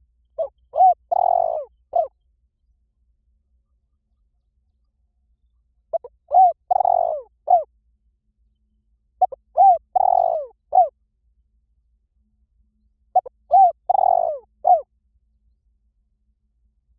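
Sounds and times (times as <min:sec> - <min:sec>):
dove cooing: 0:00.4 - 0:02.1, 0:05.9 - 0:07.7, 0:09.2 - 0:10.9, 0:13.2 - 0:14.8.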